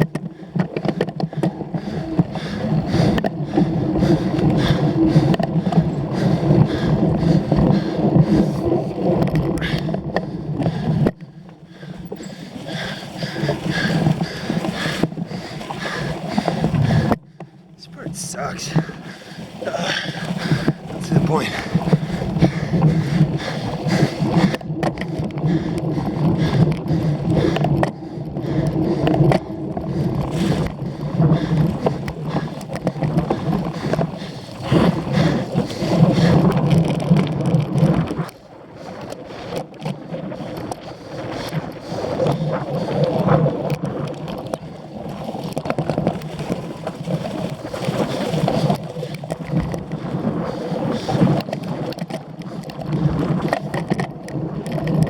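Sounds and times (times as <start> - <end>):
bicycle tyre rumble: 0.0 - 55.0
bicycle chain and frame rattle: 18.6 - 55.0.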